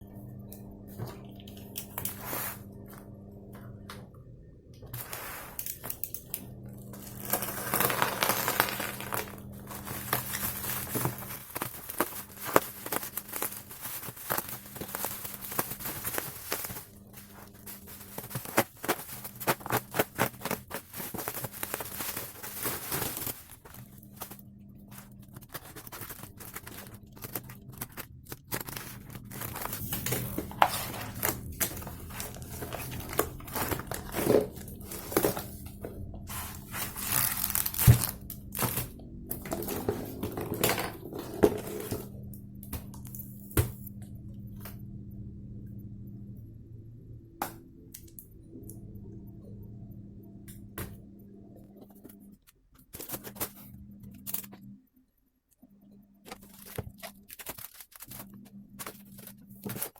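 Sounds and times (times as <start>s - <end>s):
packaging crinkling and tearing: 7.0s - 35.7s, 36.3s - 42.0s, 56.3s - 59.9s.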